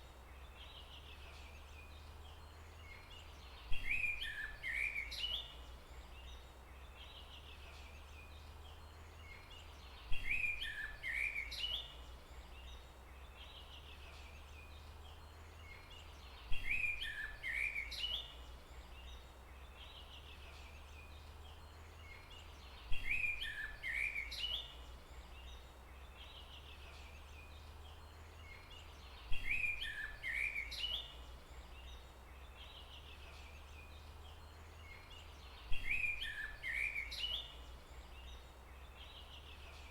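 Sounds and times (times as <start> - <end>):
low rumble of forest ambience: 0.0 - 39.9
songbird chirping: 0.0 - 39.9.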